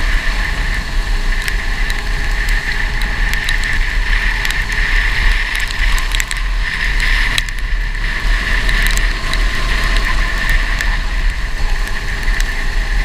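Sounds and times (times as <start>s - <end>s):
go-kart engine drone: 0.0s - 13.0s
wind rumble on microphone: 0.0s - 13.0s
small clicks: 1.3s - 7.7s, 8.6s - 12.6s.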